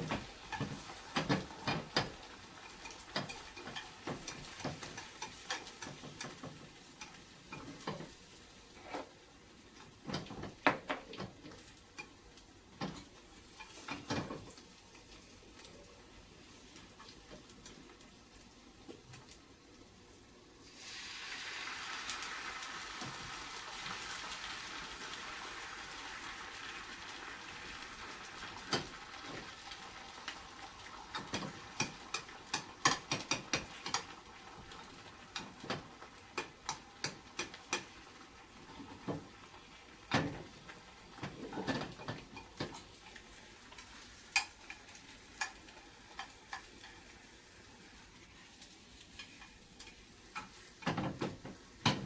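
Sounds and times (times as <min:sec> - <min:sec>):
utensils tapping on pan: 0:00.0 - 0:15.7, 0:28.5 - 0:47.2, 0:48.6 - 0:52.0
egg sizzling in a pan: 0:00.0 - 0:52.0.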